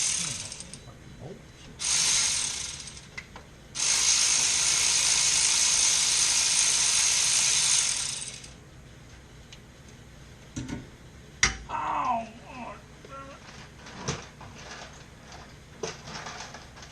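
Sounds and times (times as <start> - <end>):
ratchet wrench ratcheting: 1.8 - 3.1, 3.8 - 8.6.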